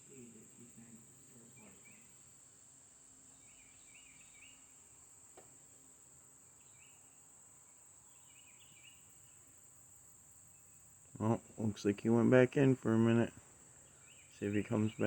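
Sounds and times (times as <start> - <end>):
bird chirps: 1.5 - 2.3, 3.3 - 5.0, 6.6 - 9.5, 13.7 - 15.0.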